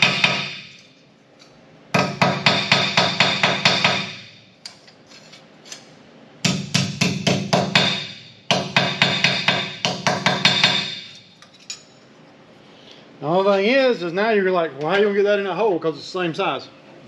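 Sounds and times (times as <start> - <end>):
hammer ringing on sheet metal: 0.0 - 0.8, 2.0 - 4.4, 6.4 - 11.2.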